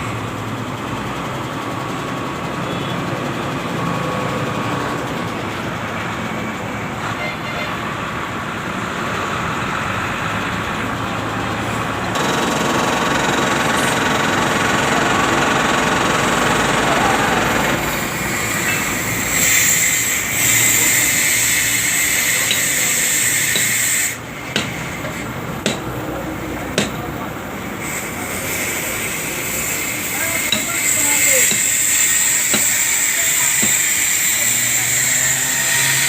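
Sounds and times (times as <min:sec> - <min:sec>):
loud steady hiss: 0:27.3 - 0:36.0.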